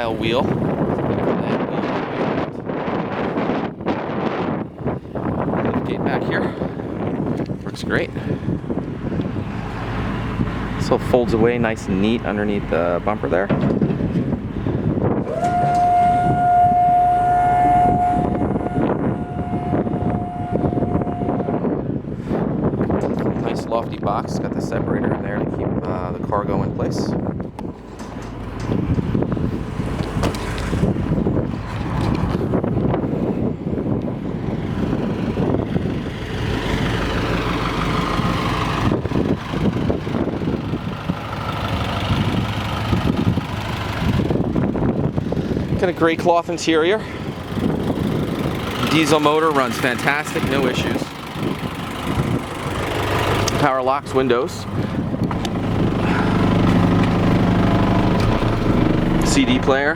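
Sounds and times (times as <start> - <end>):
diesel engine idling: 0.0 - 22.9, 26.2 - 59.9
hydraulic pump motor whining: 12.0 - 22.9, 27.4 - 45.8, 47.2 - 59.9.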